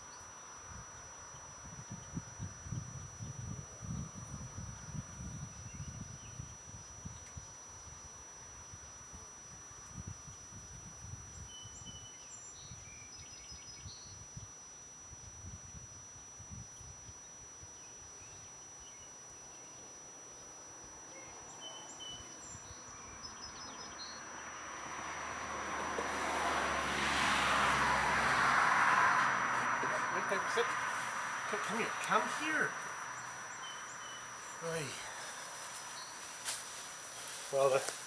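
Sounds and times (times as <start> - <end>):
songbird chirping: 17.2 - 25.2, 28.4 - 38.0
vehicle approaching: 24.7 - 33.2.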